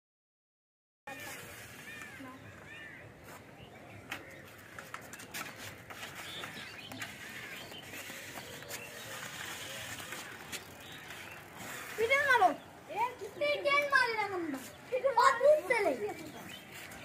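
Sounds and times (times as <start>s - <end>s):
outdoor background noise: 1.1s - 17.0s
bird chirps: 6.2s - 11.7s.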